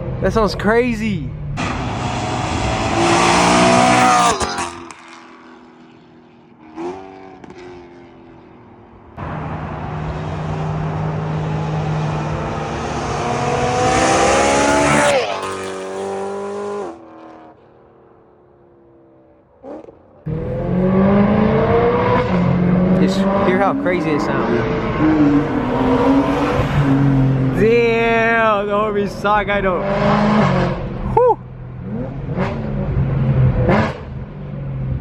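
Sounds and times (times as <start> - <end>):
car engine accelerating: 1.3 - 17.6, 19.6 - 35.0.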